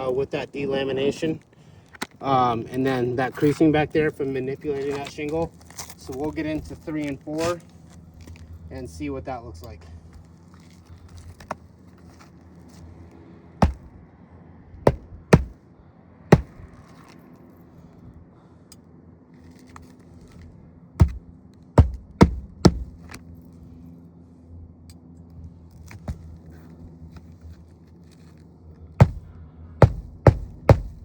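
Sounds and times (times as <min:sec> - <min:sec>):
hand tools knocking on shingles: 0:13.6 - 0:13.9, 0:14.9 - 0:15.5, 0:16.3 - 0:16.7, 0:21.0 - 0:21.2, 0:21.8 - 0:23.1, 0:29.0 - 0:31.0
steady low hum: 0:13.6 - 0:13.9, 0:14.9 - 0:15.6, 0:16.3 - 0:16.7, 0:21.0 - 0:21.2, 0:21.8 - 0:23.2, 0:29.0 - 0:31.0.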